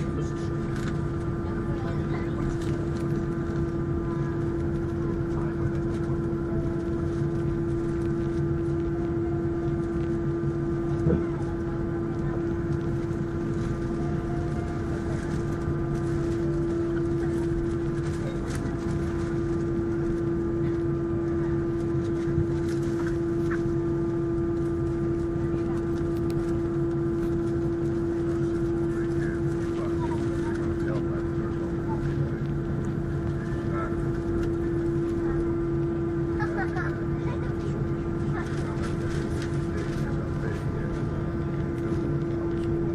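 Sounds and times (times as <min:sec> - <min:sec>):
jet engine cabin drone: 0:00.0 - 0:42.9.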